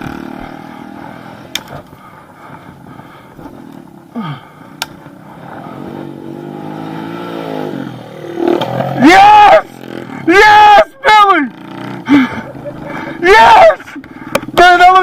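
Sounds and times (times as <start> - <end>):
pit bike engine revving: 0.0 - 10.7, 11.4 - 15.0
sharp clicks: 1.5 - 1.9.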